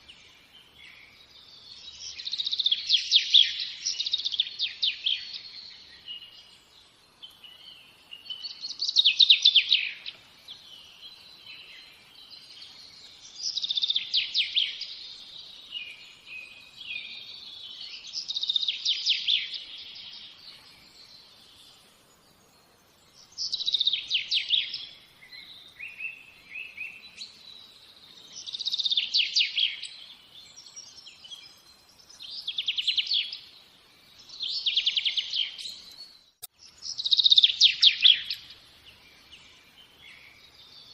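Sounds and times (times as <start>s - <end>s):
quiet bird chirps and twitters: 0.0s - 40.9s
songbird trilling: 36.8s - 38.5s.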